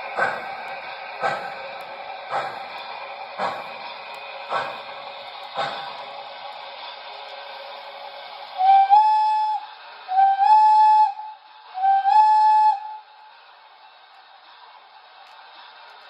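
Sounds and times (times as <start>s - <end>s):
model train steam whistle: 8.6s - 13.3s.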